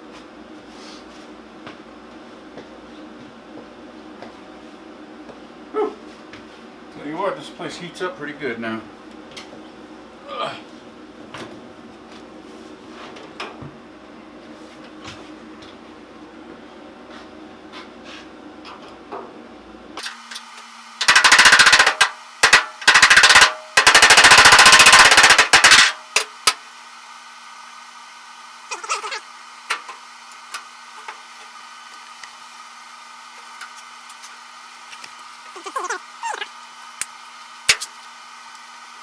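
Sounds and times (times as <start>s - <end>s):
faint squeaks: 35.5s - 36.5s.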